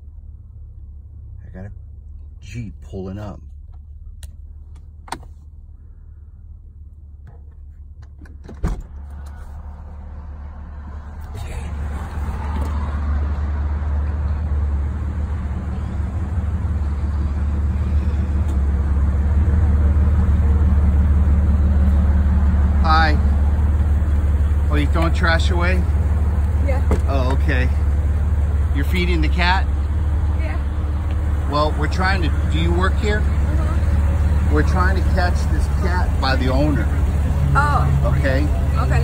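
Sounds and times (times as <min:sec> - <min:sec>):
car engine idling: 0:00.0 - 0:39.0
car door latch clicking: 0:05.0 - 0:05.4.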